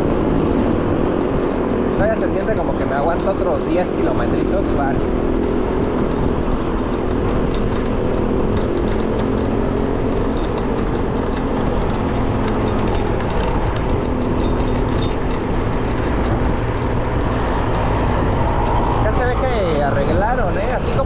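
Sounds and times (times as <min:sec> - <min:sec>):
street traffic: 0:00.0 - 0:21.0
wind rush: 0:15.2 - 0:21.0.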